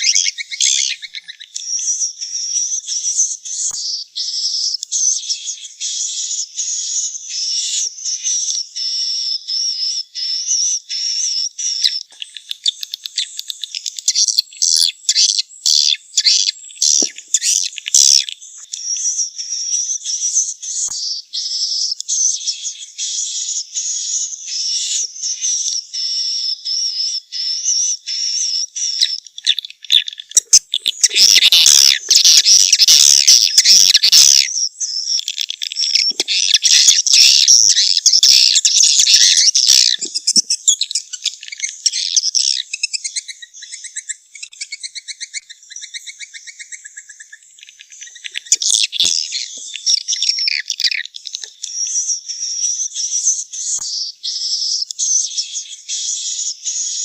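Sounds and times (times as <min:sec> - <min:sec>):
birds chirping and twittering: 0:00.0 - 0:57.0.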